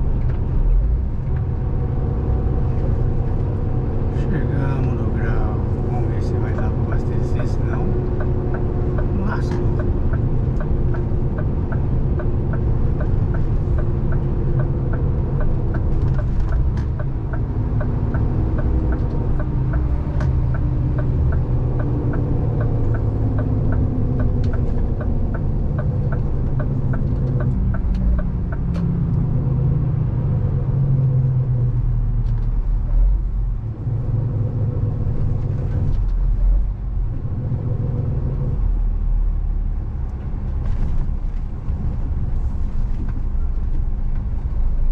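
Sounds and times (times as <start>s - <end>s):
truck diesel engine from cab: 0.0s - 44.9s
even ticking: 6.5s - 28.8s.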